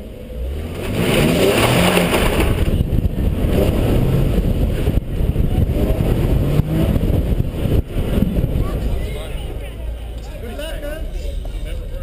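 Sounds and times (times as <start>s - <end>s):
car engine accelerating hard: 0.0s - 12.0s
wind noise on microphone: 2.0s - 9.1s.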